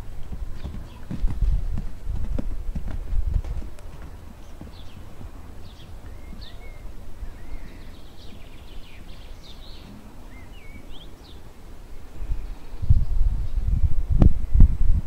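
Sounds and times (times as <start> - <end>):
songbirds chirping and singing: 0.0 - 14.0
steady low rumble: 0.0 - 15.0.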